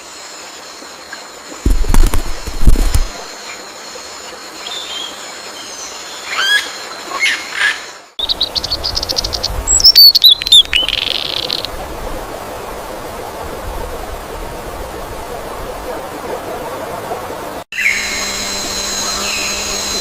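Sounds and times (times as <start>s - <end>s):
steady high hum: 17.4s - 20.0s.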